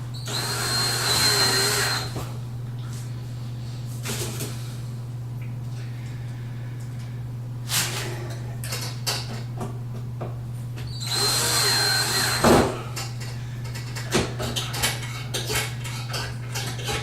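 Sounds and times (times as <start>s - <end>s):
power drill driving a screw: 0.2s - 2.2s, 11.0s - 12.7s.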